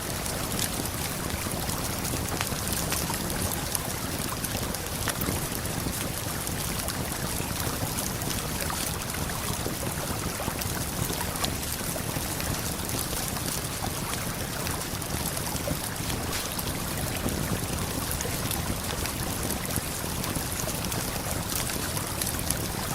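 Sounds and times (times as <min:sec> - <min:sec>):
campfire crackling: 0:00.0 - 0:22.9
river water flowing: 0:14.8 - 0:22.9.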